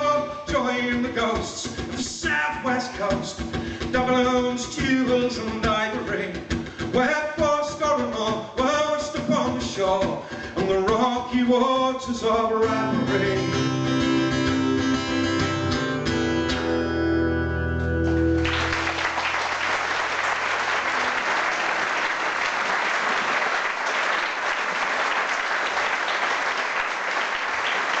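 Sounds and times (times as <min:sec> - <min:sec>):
guitar chord ringing: 0:13.6 - 0:18.4
audience applause: 0:18.3 - 0:28.0.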